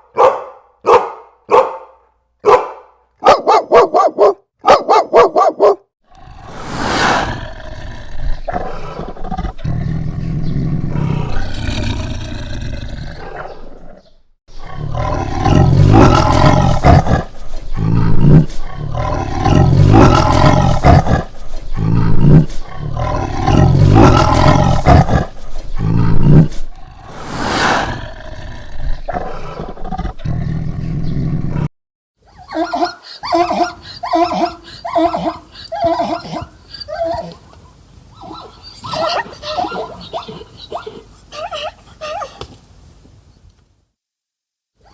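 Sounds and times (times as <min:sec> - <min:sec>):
big cat roaring and growling: 0:06.1 - 0:31.7.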